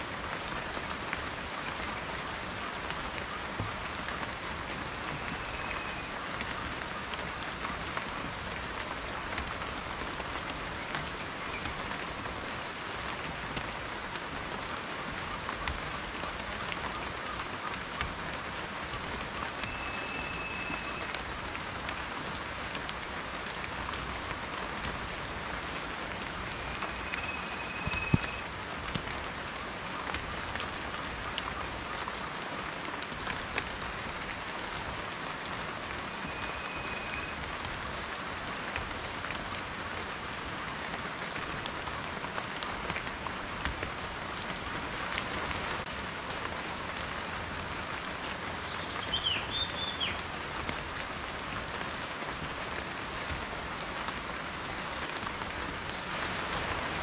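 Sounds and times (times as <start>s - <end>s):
raindrops ticking on a surface: 0.0s - 57.0s
steady rain: 0.0s - 57.0s
faint high whistling note: 26.6s - 28.4s.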